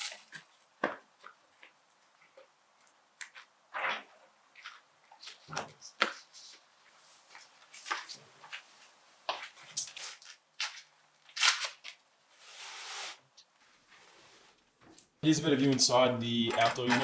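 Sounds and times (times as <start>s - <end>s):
objects being handled: 15.7s - 17.0s.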